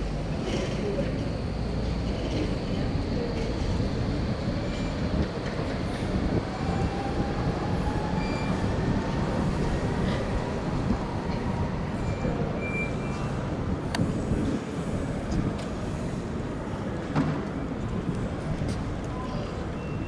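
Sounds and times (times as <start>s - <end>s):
train wheels rumbling on rails: 0.0s - 20.0s
high wheel squeals: 8.1s - 8.7s, 11.9s - 13.4s.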